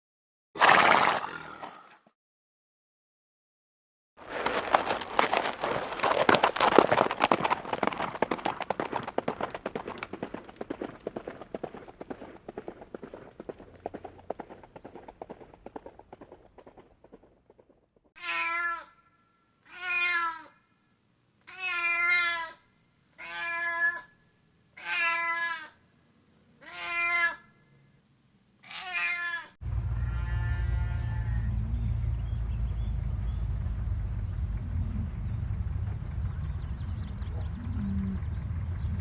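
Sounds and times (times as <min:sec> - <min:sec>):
cat meowing: 0:18.2 - 0:19.0, 0:19.6 - 0:20.6, 0:21.5 - 0:22.6, 0:23.2 - 0:24.1, 0:24.8 - 0:25.8, 0:26.6 - 0:27.4, 0:28.6 - 0:31.4
loud steady rumbling: 0:29.6 - 0:39.0.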